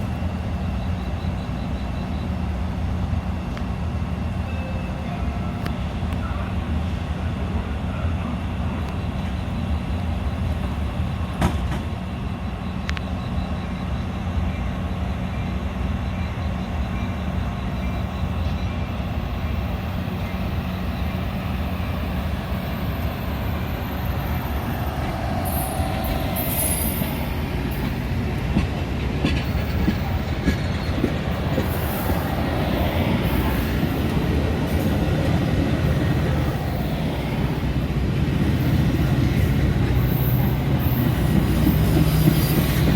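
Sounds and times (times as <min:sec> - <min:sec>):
diesel train engine droning: 0:00.0 - 0:42.9
high-pitched squeals: 0:22.6 - 0:28.4.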